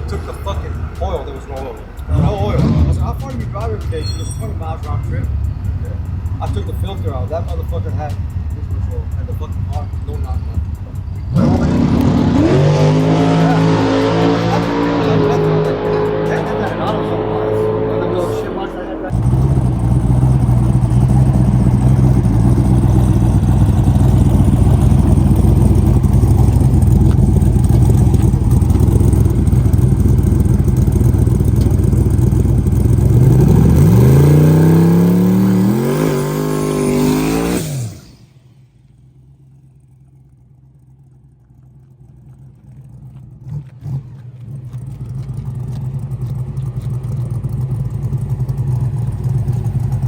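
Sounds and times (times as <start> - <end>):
drag racing car engine: 0.0 - 50.0
quieter engine sound: 0.0 - 50.0.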